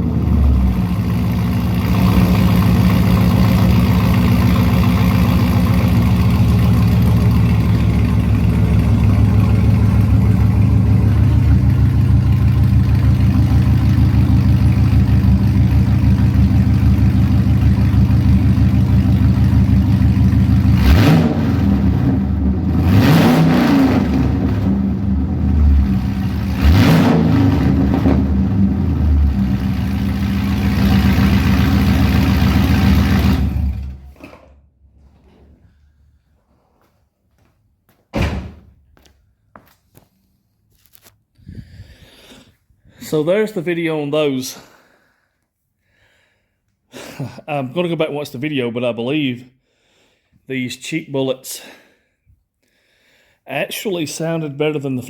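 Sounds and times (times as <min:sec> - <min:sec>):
car engine idling: 0:00.0 - 0:23.0, 0:24.0 - 0:34.1
car engine revving: 0:00.0 - 0:34.0.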